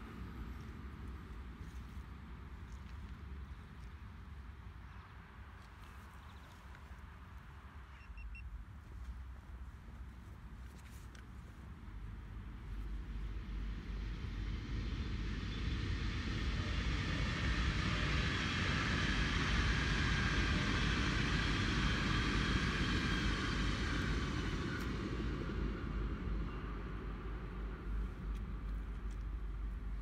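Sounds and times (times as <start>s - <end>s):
train wheel and rail noise: 0.0s - 30.0s
faint high whine: 11.9s - 30.0s.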